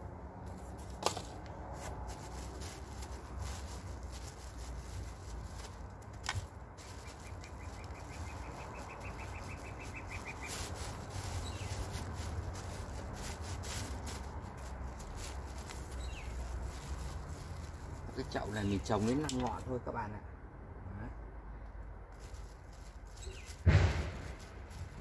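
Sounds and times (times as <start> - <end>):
plastic bag and soil rustling: 0.0 - 20.0, 22.1 - 25.0
small bird trilling: 6.9 - 11.8
steady low rumble: 19.8 - 25.0.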